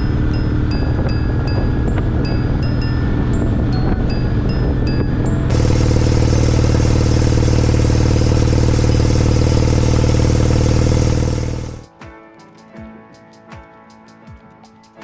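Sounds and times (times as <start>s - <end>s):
motorcycle engine running: 5.5s - 11.9s.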